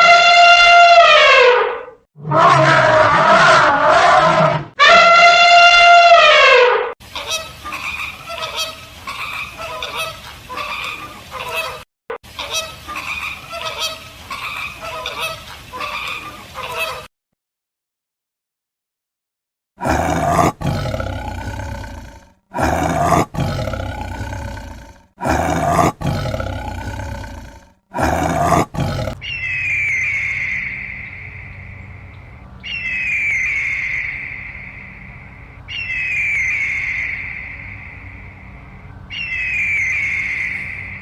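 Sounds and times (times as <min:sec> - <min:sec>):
big cat roaring: 0:02.2 - 0:04.7, 0:19.8 - 0:29.2
bird's high descending call: 0:29.2 - 0:31.5, 0:32.6 - 0:35.0, 0:35.7 - 0:38.1, 0:39.1 - 0:41.0.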